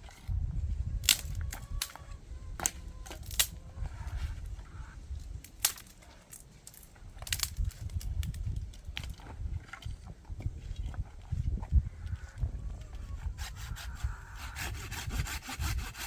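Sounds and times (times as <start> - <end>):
wood fire crackling and popping: 6.6 - 9.1.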